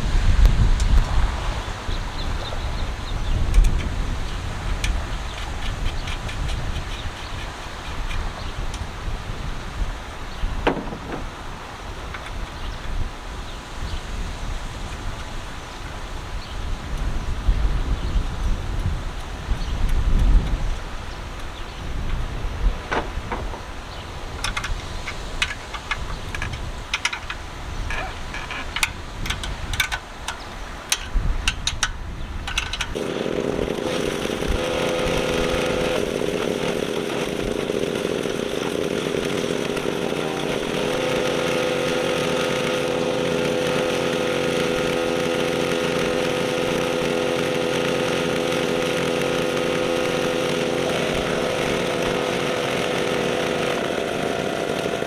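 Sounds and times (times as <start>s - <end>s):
small gas engine running: 0.2s - 13.0s, 32.5s - 55.0s
clicks and knocks: 10.6s - 11.5s, 22.8s - 33.0s.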